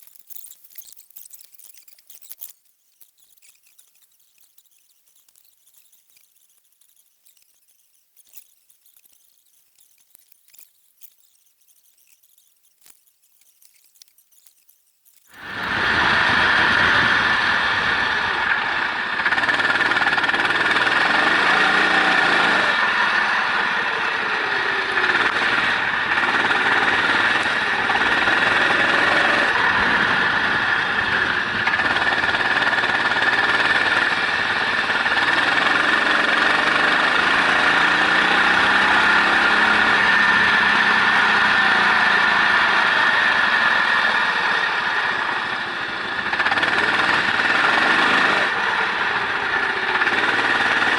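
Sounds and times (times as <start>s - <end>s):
racing engine revving: 15.4s - 50.9s.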